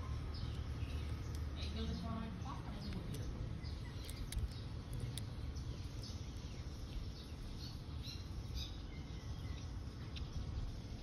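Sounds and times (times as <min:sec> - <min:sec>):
low background rumble: 0:00.0 - 0:11.0
small birds chirping: 0:00.0 - 0:11.0
sharp clicks: 0:02.8 - 0:05.4.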